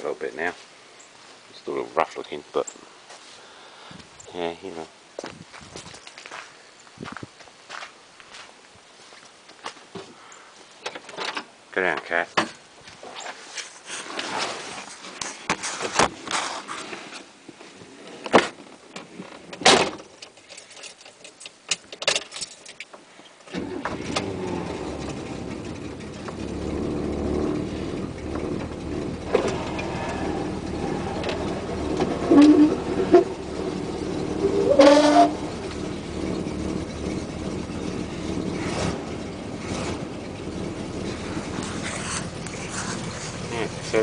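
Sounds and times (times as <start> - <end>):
car engine starting and rumbling: 23.5 - 44.0.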